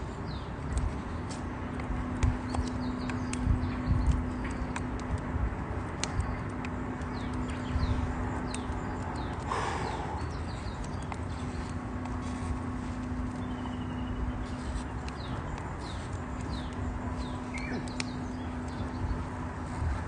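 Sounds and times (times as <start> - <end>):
low steady hum: 0.0 - 20.0
small birds chirping: 0.0 - 20.0
campfire crackling and popping: 0.6 - 9.8, 14.2 - 19.1.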